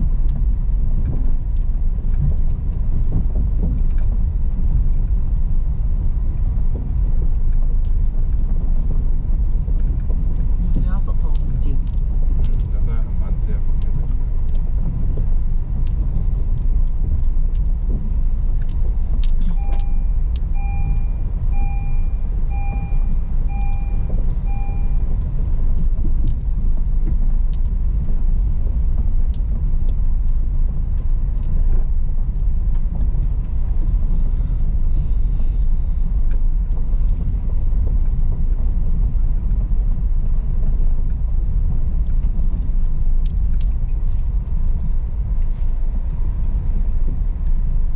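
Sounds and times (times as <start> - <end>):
car engine and tyres rumbling: 0.0 - 47.9
short electronic beeps: 19.4 - 25.2.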